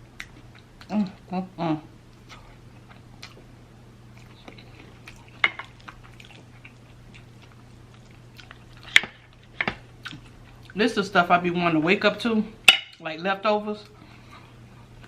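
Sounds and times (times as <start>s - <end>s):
chewing and lip smacks: 0.1s - 1.3s, 2.1s - 3.5s, 4.1s - 10.8s.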